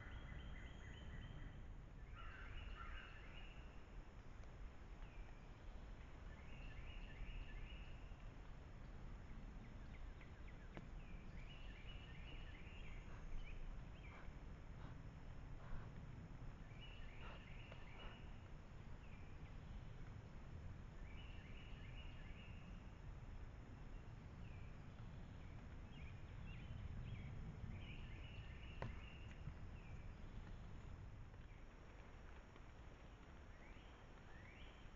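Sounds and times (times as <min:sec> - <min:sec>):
songbird singing: 0:00.0 - 0:04.0, 0:05.0 - 0:15.0, 0:16.6 - 0:20.1, 0:20.9 - 0:23.0, 0:23.7 - 0:31.7, 0:33.1 - 0:34.9
faint outdoor rumble: 0:00.0 - 0:34.9.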